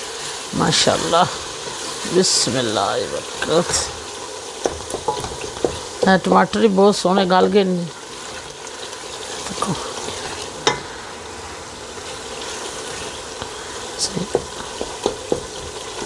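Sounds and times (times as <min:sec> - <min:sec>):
food sizzling in hot oil: 0:00.0 - 0:16.0
spoon knocking against pot: 0:04.6 - 0:06.1.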